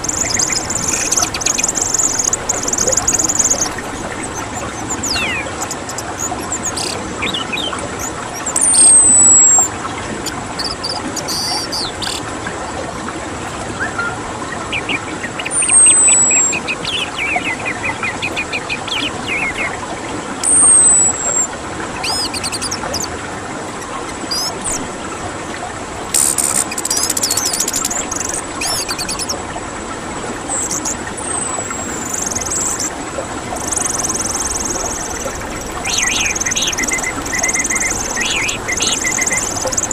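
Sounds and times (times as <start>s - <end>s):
bird trills and chirps: 0.0s - 12.2s, 13.8s - 19.8s, 20.4s - 23.1s, 24.1s - 24.8s, 26.1s - 29.4s, 30.5s - 39.9s
bird whistles sliding downward: 8.5s - 9.7s, 13.8s - 14.2s, 15.5s - 16.6s, 20.4s - 21.4s, 33.5s - 39.9s.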